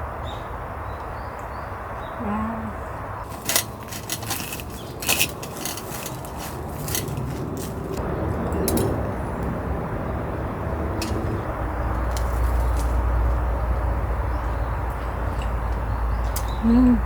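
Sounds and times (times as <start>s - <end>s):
steady low rumble: 2.0s - 16.7s
cooking utensils clinking: 3.2s - 9.1s.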